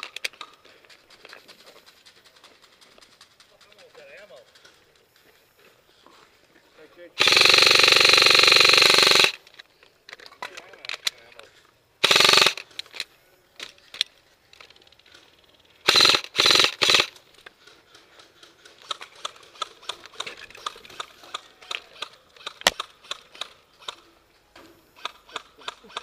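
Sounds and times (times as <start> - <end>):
airsoft gun full-auto bursts: 7.2 - 9.5, 12.0 - 12.8, 15.8 - 17.2.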